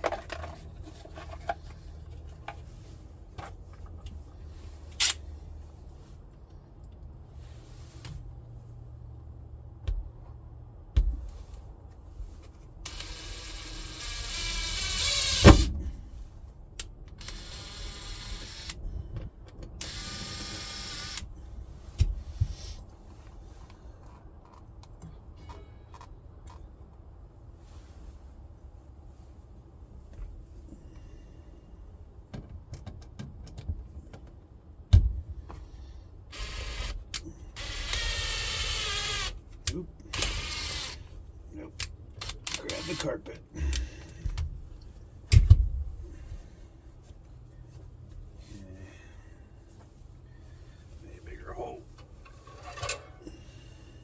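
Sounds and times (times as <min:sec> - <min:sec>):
cordless drill driving screws: 0:12.9 - 0:15.7, 0:17.2 - 0:18.8, 0:19.8 - 0:21.3, 0:36.3 - 0:39.4, 0:40.1 - 0:41.1, 0:42.2 - 0:43.8
screw seating clunk: 0:12.9 - 0:16.0, 0:52.3 - 0:53.2
heavy thump: 0:15.4 - 0:16.2, 0:34.9 - 0:35.4, 0:45.3 - 0:46.0
sharp clicks and knocks: 0:45.3 - 0:45.8.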